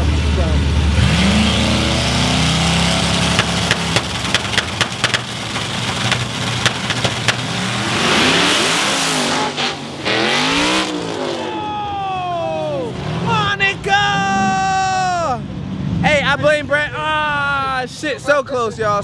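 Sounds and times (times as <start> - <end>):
racing car engines revving: 0.0 - 19.0
sharp cracks: 3.1 - 7.8.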